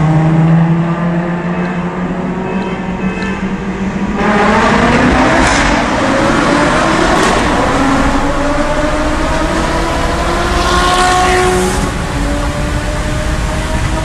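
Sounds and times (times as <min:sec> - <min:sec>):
car engine accelerating hard: 0:03.6 - 0:14.0.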